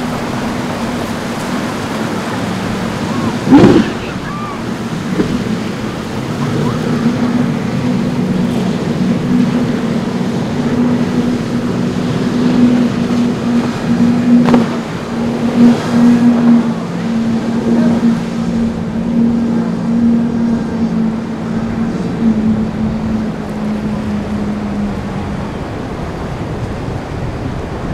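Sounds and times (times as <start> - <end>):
motorboat engines humming: 0.0 - 27.9
rushing water: 0.0 - 27.9
wind: 0.0 - 27.9.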